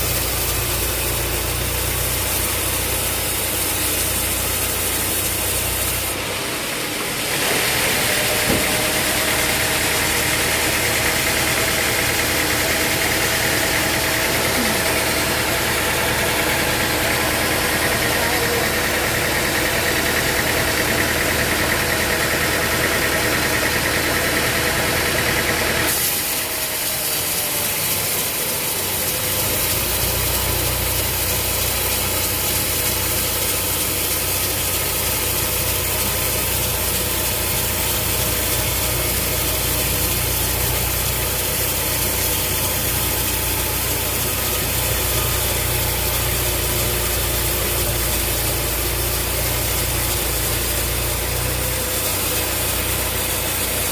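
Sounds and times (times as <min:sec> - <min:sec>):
engine running: 0:00.0 - 0:53.9.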